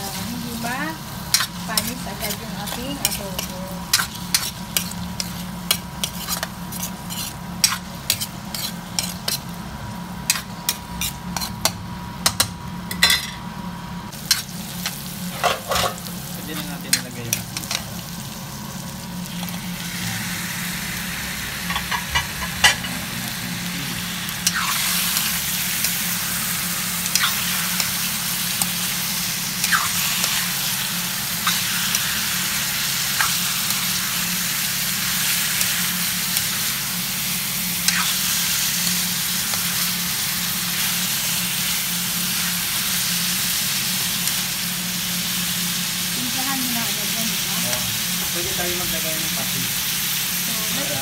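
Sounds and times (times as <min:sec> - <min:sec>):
food sizzling in hot oil: 0:00.0 - 0:51.0
metal spatula scraping a pan: 0:02.6 - 0:09.5.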